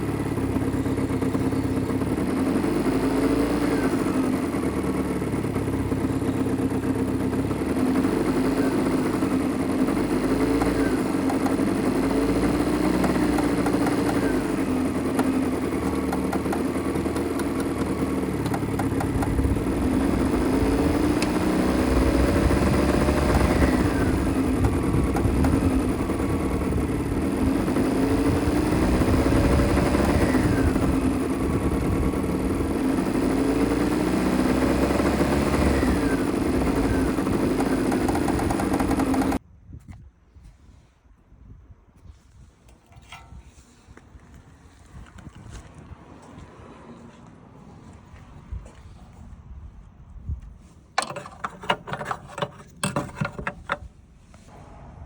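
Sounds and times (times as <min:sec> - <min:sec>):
small two-stroke engine revving: 0:00.0 - 0:39.4.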